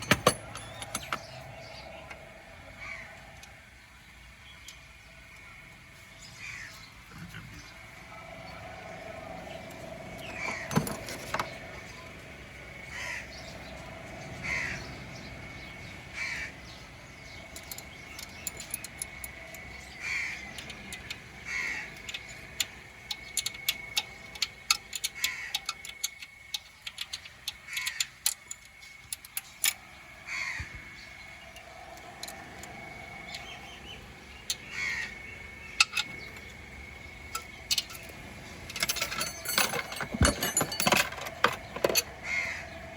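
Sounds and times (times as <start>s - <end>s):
crow cawing: 2.8s - 3.3s, 6.4s - 6.8s, 10.2s - 10.7s, 12.9s - 13.5s, 14.4s - 14.9s, 16.2s - 16.8s, 20.0s - 20.6s, 21.4s - 22.1s, 25.2s - 25.7s, 27.7s - 28.1s, 30.2s - 30.8s, 34.6s - 35.8s, 42.2s - 42.9s
faint steady high tone: 7.4s - 21.4s, 30.8s - 42.9s.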